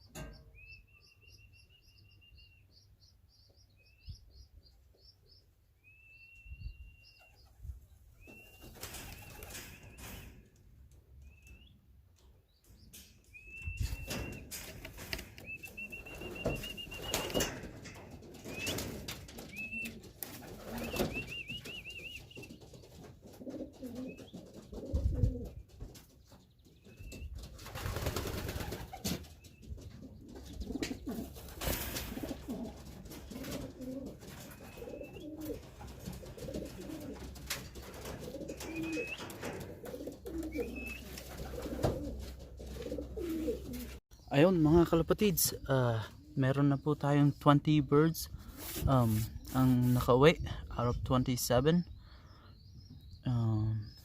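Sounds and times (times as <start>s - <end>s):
pigeons cooing: 12.9s - 44.0s, 45.4s - 46.8s
wing flaps: 13.8s - 26.2s, 26.9s - 44.0s.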